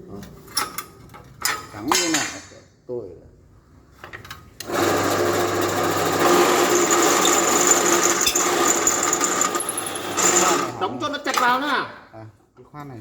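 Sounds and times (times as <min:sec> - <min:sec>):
drill press motor whining: 0:04.6 - 0:10.7.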